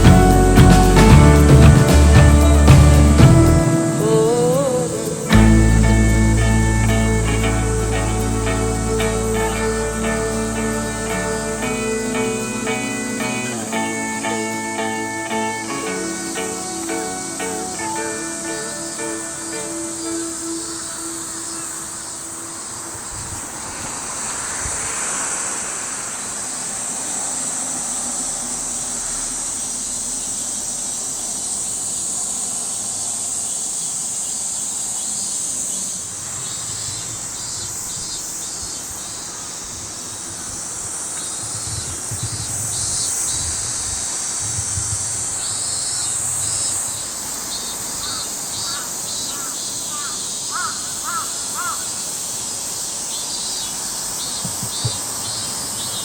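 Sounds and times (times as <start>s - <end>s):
high-pitched insect drone: 0.0s - 56.0s
rapid ticking insect calls: 0.0s - 56.0s
harsh cawing bird calls: 47.5s - 52.2s.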